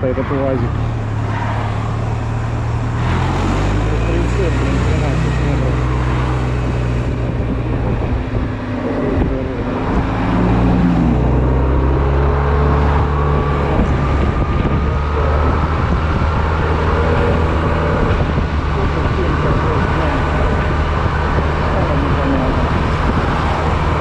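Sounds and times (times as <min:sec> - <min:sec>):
road and wind noise: 0:00.0 - 0:24.0.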